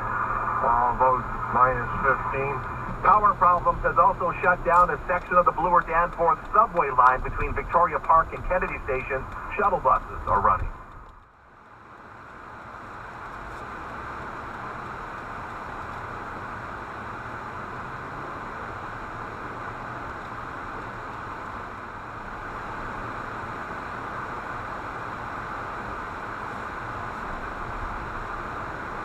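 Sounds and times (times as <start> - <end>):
road and tyre noise in car: 0.0 - 29.0.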